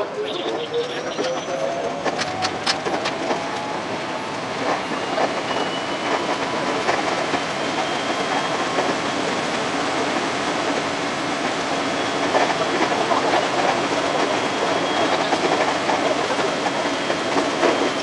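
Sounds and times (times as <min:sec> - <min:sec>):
train rolling noise: 0:00.0 - 0:18.0
wheels clicking over track joints: 0:00.2 - 0:03.8.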